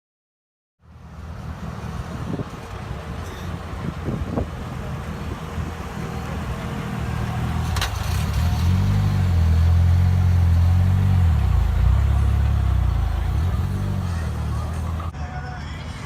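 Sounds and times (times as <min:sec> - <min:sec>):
car engine running: 0:06.0 - 0:15.1.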